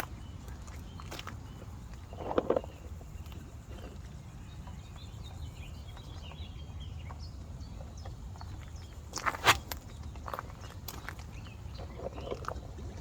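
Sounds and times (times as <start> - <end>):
low outdoor background: 0.0 - 13.0.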